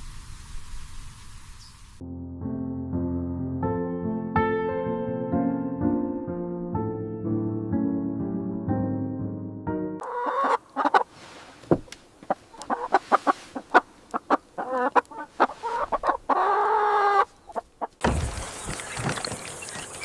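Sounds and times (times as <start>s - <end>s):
chickens clucking: 10.0s - 11.1s, 12.2s - 20.0s.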